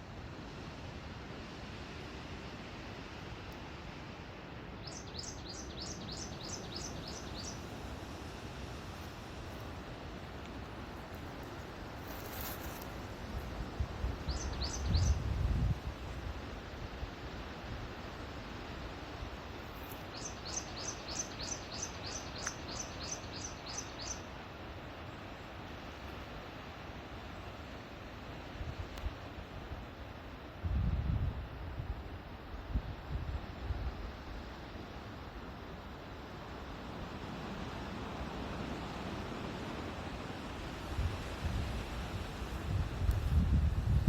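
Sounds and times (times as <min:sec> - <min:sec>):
wind rushing through forest: 0:00.0 - 0:44.0
songbird high chirps: 0:04.8 - 0:07.8, 0:14.2 - 0:15.6, 0:19.7 - 0:24.3
wind noise: 0:10.6 - 0:16.9, 0:30.6 - 0:34.2, 0:40.3 - 0:44.0.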